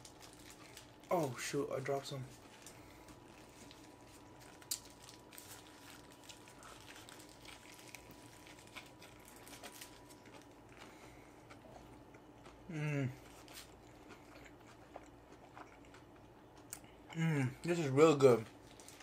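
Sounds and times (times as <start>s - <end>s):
chewing and mouth noises: 2.3s - 17.2s
person humming mm: 12.7s - 13.2s.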